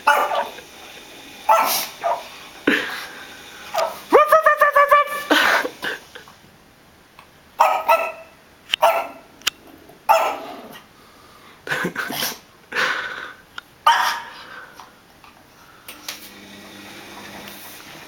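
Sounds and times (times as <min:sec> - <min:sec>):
puppy barking: 0:00.0 - 0:00.6, 0:01.5 - 0:02.3, 0:03.7 - 0:04.2, 0:07.6 - 0:09.3, 0:10.1 - 0:10.8, 0:13.8 - 0:14.4.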